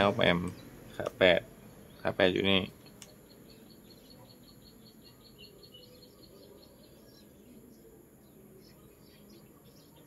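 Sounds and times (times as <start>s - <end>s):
faint birds chirping: 0.0s - 10.0s.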